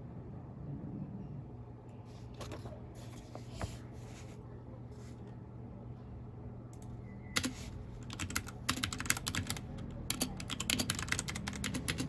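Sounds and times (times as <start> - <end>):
steady low hum: 0.0 - 12.0
mechanical keyboard clicks: 7.4 - 12.0.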